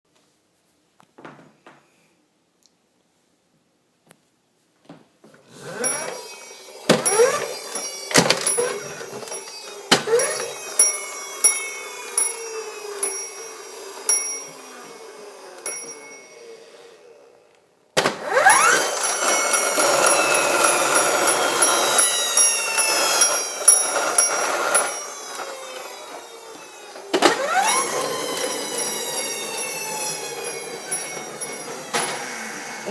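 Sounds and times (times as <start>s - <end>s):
high dings: 10.2s - 17.0s, 28.7s - 32.9s
fire engine siren wailing: 24.8s - 32.9s.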